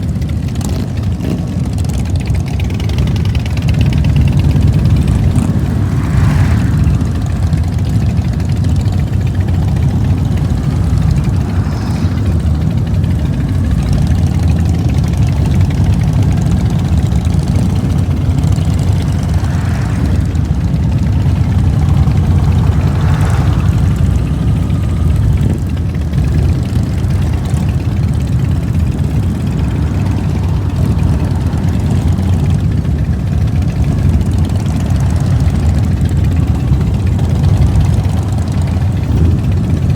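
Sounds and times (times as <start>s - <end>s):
motorcycle engine rumble: 0.0s - 39.9s.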